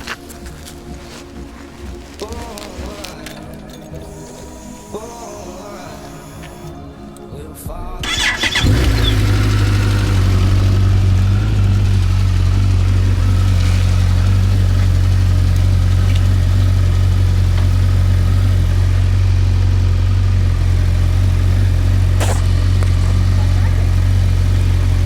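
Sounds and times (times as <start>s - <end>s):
motorcycle engine idling: 7.7s - 25.0s.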